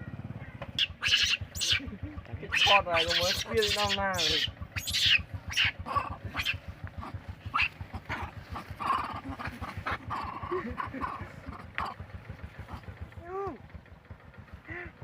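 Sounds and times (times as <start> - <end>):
steady low hum: 0.0 - 15.0
baby monkey squeaking: 0.8 - 12.0.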